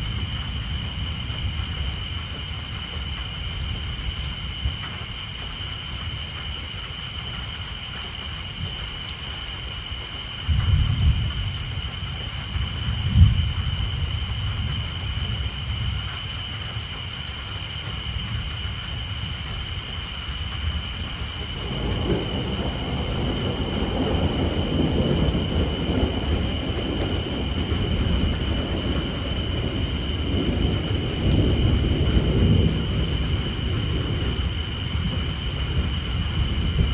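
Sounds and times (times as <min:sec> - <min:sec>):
thunder rumbling: 0:00.0 - 0:05.5, 0:10.4 - 0:36.9
rain on a tin roof: 0:00.0 - 0:36.9
tree frogs chorus: 0:00.0 - 0:36.9
sharp thunder cracks: 0:21.6 - 0:36.9.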